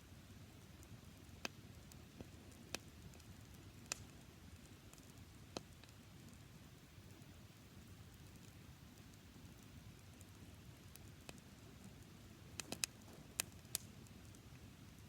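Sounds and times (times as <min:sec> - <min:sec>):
campfire crackling: 0:00.1 - 0:15.0
sharp fire pops: 0:12.5 - 0:14.4.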